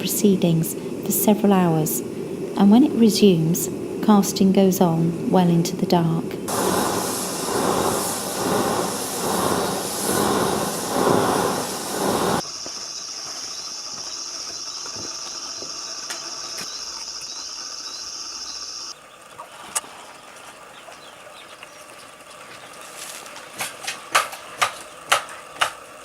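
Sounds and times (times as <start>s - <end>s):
furnace burning with rushing hiss: 0.0s - 19.0s.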